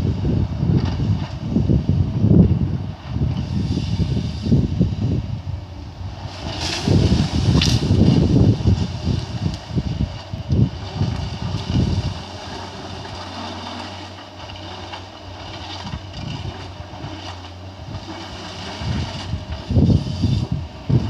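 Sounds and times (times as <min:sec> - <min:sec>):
heavy low thumps: 0:00.0 - 0:12.3
excavator diesel engine humming: 0:00.0 - 0:21.0.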